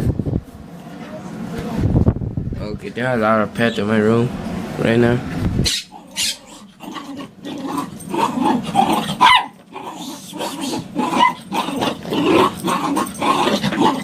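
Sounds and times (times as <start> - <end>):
dog squealing: 5.6 - 14.0
dog whining: 5.6 - 14.0
dog growling: 5.8 - 14.0.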